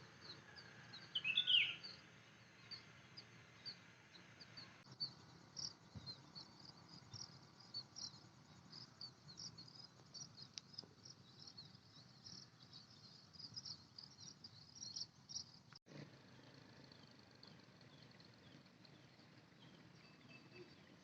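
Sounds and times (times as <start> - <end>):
crickets chirping: 4.9 - 15.8.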